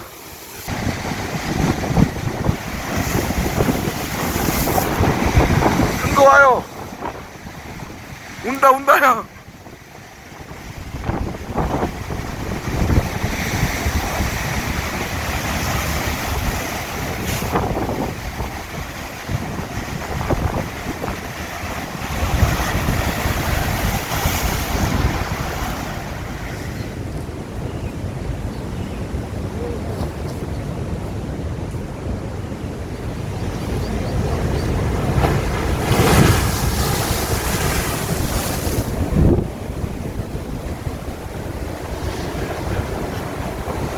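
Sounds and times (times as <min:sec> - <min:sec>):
wind buffeting microphone: 0:00.0 - 0:08.6, 0:09.3 - 0:43.9
wave crashing on rocks: 0:00.0 - 0:27.6, 0:32.8 - 0:43.9
surf rushing: 0:00.0 - 0:28.5, 0:29.1 - 0:43.9
wave breaking with loud hiss: 0:12.9 - 0:18.2, 0:35.1 - 0:40.1.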